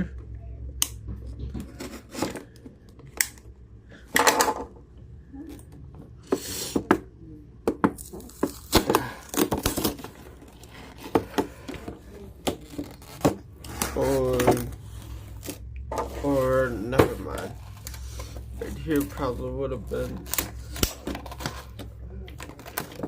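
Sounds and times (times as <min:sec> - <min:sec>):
scraping and crinkling: 0:01.1 - 0:03.1, 0:08.0 - 0:23.0
knife cutting packaging: 0:08.0 - 0:11.2, 0:16.2 - 0:23.0.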